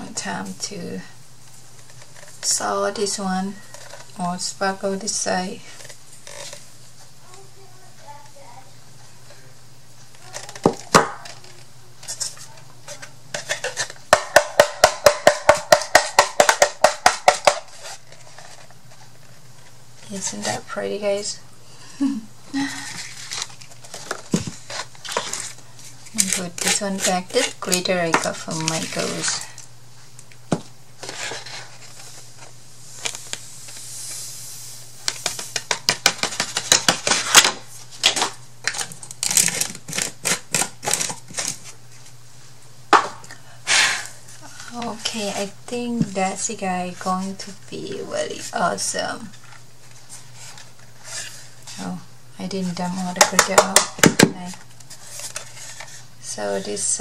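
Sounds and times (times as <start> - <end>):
rapid hollow tapping: 14.1 - 17.7.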